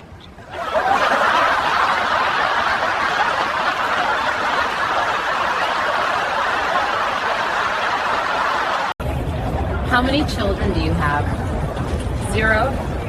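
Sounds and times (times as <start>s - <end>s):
group of people laughing: 0.4s - 9.0s.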